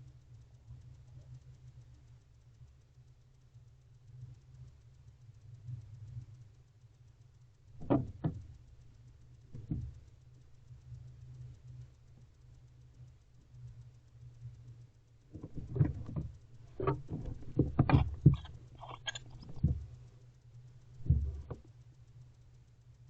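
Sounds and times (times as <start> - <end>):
low electrical hum: 0.0 - 23.0
knocks in wooden nest box: 7.8 - 8.4, 15.4 - 19.8, 21.0 - 21.6
scrabbling scrapes: 15.4 - 20.0.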